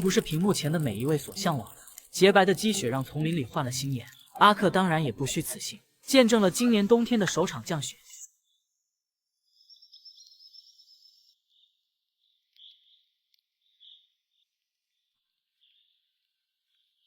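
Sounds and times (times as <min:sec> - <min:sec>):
faint bird chirps: 0:09.4 - 0:14.6.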